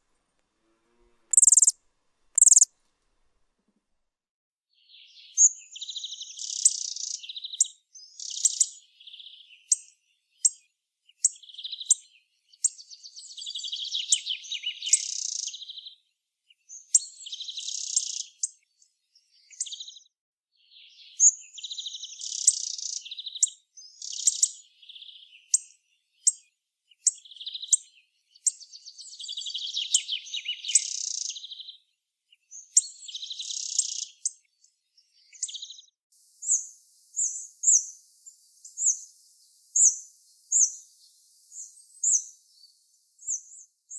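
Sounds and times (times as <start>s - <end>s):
bird calling: 1.3s - 1.8s, 2.4s - 2.7s.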